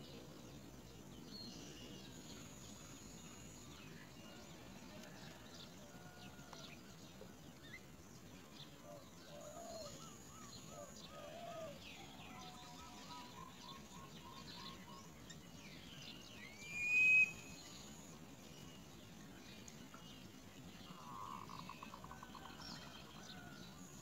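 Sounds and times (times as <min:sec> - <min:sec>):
loud rising bird whistle: 0:16.5 - 0:17.7.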